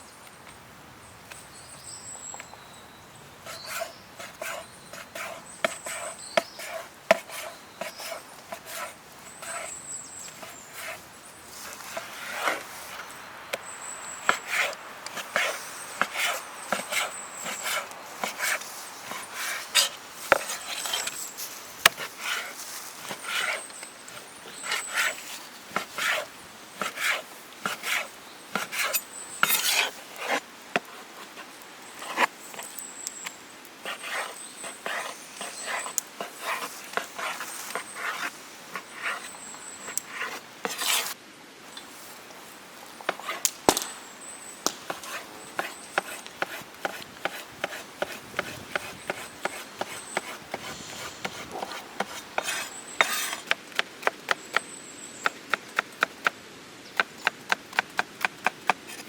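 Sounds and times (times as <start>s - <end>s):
chopping wood: 43.1s - 44.0s, 44.6s - 50.6s.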